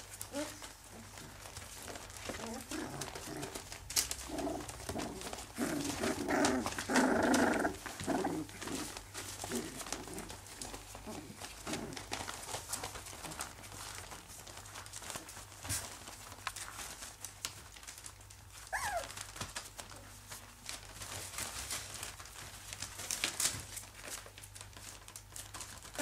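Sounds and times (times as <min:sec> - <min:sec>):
puppies rustling and scratching: 0:00.0 - 0:26.0
puppy whimper: 0:18.6 - 0:20.0.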